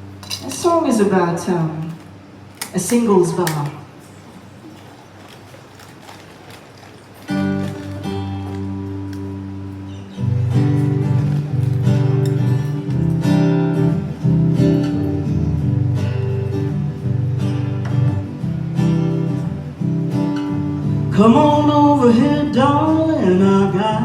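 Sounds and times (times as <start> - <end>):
acoustic guitar strumming: 7.2 - 24.0.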